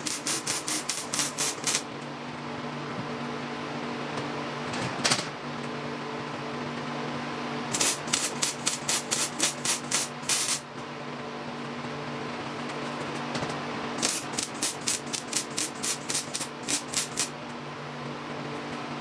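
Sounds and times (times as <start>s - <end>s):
welder bursts: 0.0s - 1.9s, 7.7s - 10.6s, 14.0s - 17.4s
steady hum: 0.0s - 2.0s, 7.7s - 10.9s, 13.9s - 17.5s.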